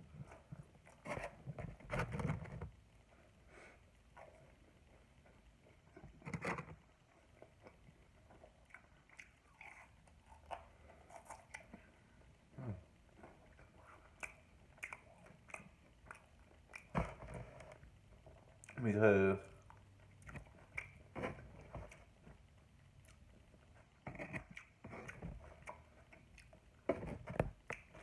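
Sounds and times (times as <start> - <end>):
person chewing food: 4.1 - 18.8, 19.5 - 28.0
wet mouth clicks and smacks: 14.2 - 17.0, 19.6 - 21.1.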